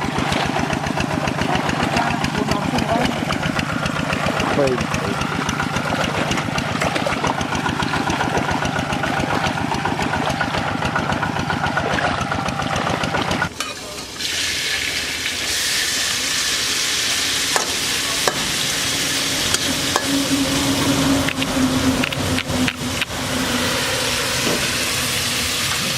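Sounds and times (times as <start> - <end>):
small engine pulsing: 0.0 - 13.6, 14.6 - 25.9
food sizzling in a pan: 13.6 - 20.6.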